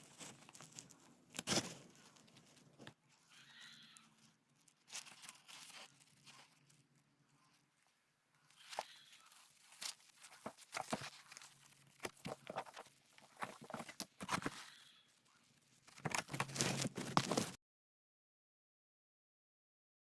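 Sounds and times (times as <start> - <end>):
packaging rustling and crinkling: 0.0 - 3.0, 4.2 - 7.0, 8.6 - 14.7, 15.5 - 17.6.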